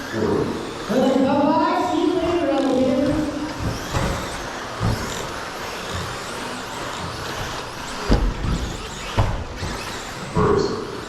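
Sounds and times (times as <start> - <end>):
high motor whines: 0.0 - 11.0
rc trucks motors and tyres hissing: 0.0 - 11.0.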